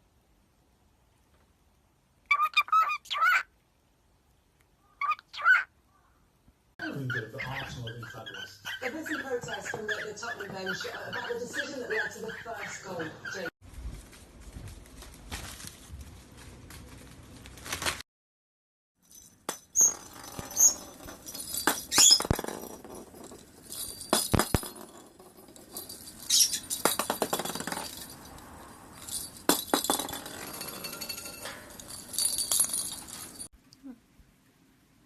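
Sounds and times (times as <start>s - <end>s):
small hard objects clinking: 19.0s - 33.5s.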